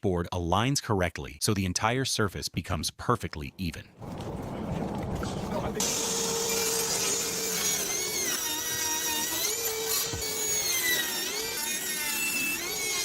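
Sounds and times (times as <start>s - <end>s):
power tool motor whining: 5.8s - 13.0s.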